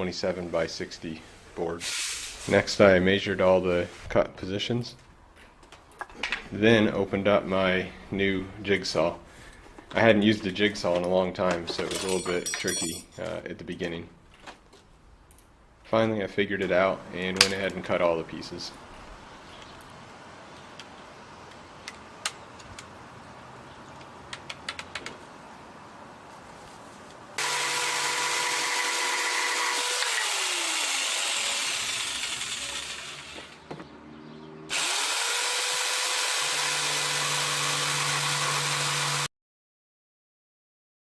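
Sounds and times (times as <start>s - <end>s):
electric jigsaw cutting: 27.4s - 33.6s, 34.7s - 39.3s.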